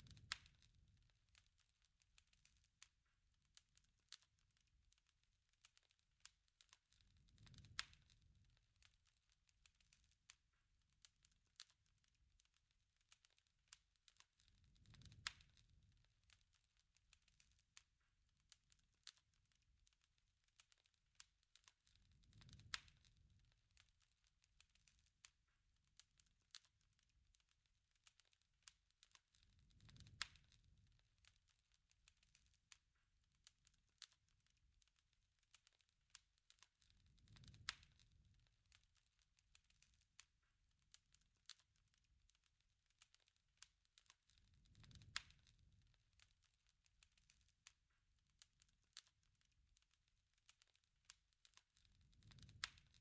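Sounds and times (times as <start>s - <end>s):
campfire crackling and popping: 0.0s - 53.0s.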